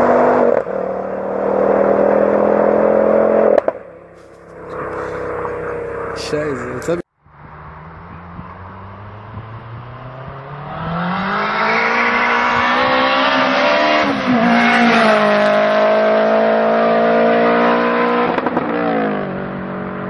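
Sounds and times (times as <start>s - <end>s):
car engine revving: 0.0s - 20.0s
exhaust crackles: 0.6s - 7.1s.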